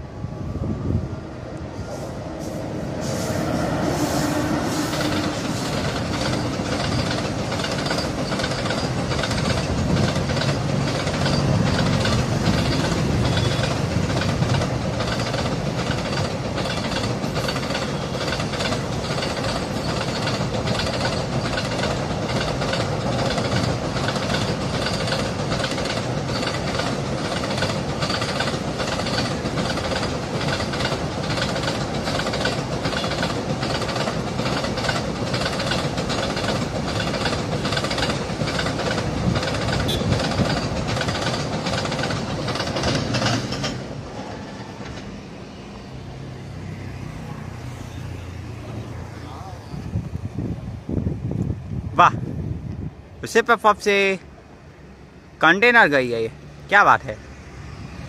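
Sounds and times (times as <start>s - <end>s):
locomotive hum: 0.0s - 53.6s
train wheels clickety-clack: 1.9s - 45.4s.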